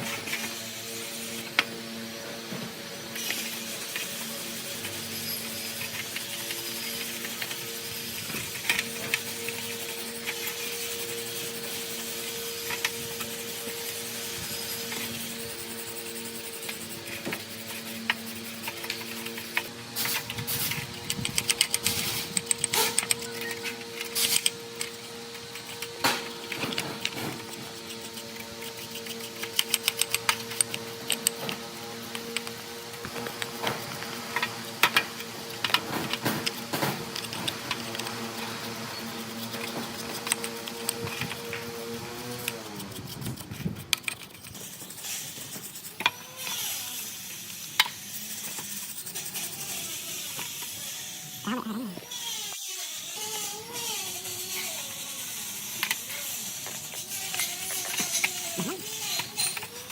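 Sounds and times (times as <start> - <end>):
scraping on metal: 0.0 - 46.8
steady background hum: 0.0 - 59.9.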